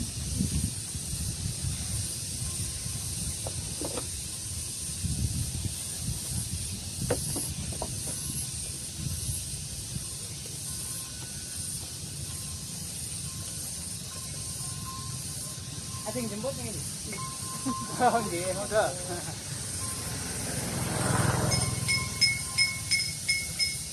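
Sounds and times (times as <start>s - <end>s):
wind rumbling on microphone: 0.0s - 11.4s
high-pitched hiss: 0.0s - 23.9s.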